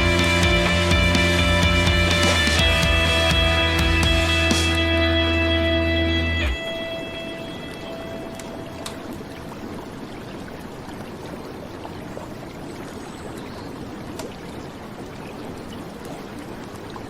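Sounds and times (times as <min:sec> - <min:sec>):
rain on flowing river: 0:01.8 - 0:17.0
held music note: 0:02.6 - 0:09.2
small drop ticks: 0:08.3 - 0:09.2.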